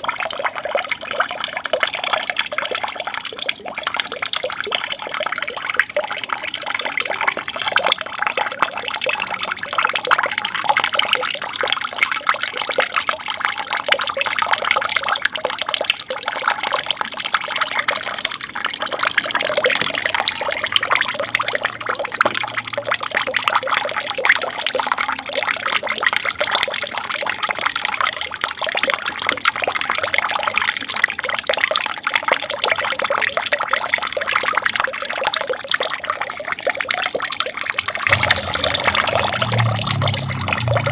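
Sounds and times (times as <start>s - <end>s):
aquarium waterfall splashing: 4.9s - 31.0s, 34.3s - 40.9s.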